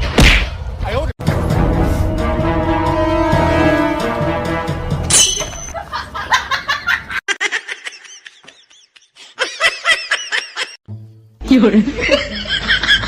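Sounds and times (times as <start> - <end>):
high-pitched laughter: 5.7 - 10.8.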